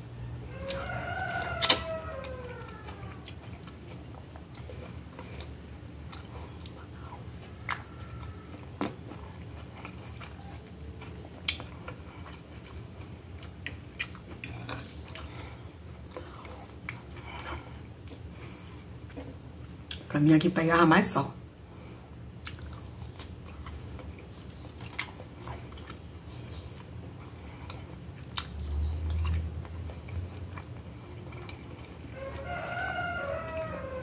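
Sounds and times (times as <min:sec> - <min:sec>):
steady low hum: 0:00.0 - 0:34.0
wet chewing with clicks: 0:00.6 - 0:18.3, 0:19.0 - 0:20.1, 0:22.4 - 0:32.5.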